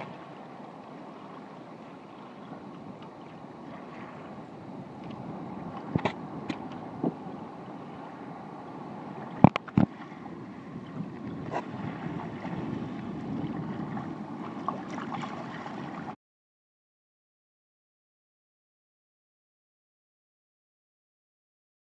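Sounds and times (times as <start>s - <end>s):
water around a kayak: 0.0s - 16.2s
water splashes: 0.0s - 16.2s
wind: 0.0s - 16.2s.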